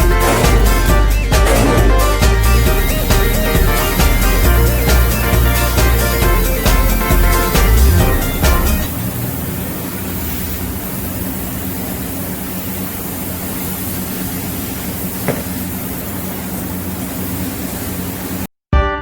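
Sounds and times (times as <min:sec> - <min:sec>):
low hum: 0:00.0 - 0:06.4
welding arc hissing: 0:00.0 - 0:18.5.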